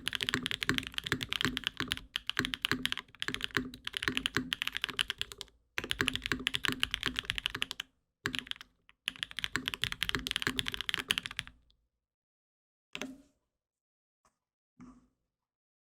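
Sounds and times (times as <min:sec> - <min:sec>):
mechanical keyboard typing: 0:00.0 - 0:11.5.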